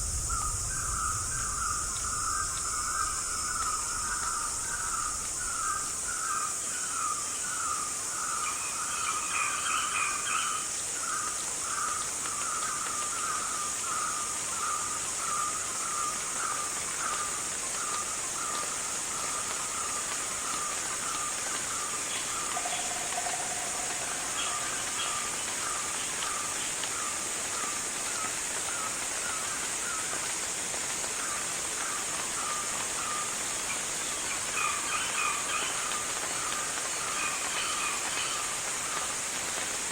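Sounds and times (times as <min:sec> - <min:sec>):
high-pitched insect drone: 0:22.1 - 0:26.5.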